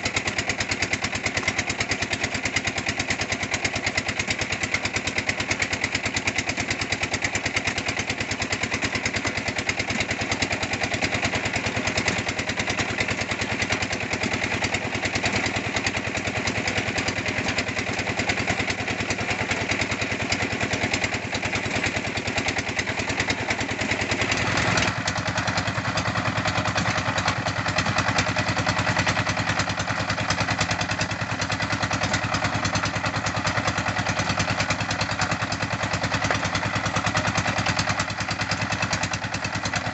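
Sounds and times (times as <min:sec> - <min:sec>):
brick press machine engine running: 0:08.8 - 0:39.9.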